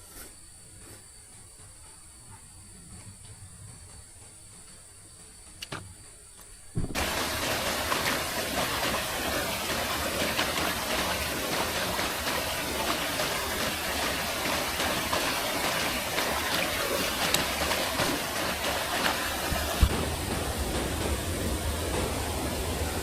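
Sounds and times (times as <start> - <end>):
stream water flowing: 6.8 - 23.0.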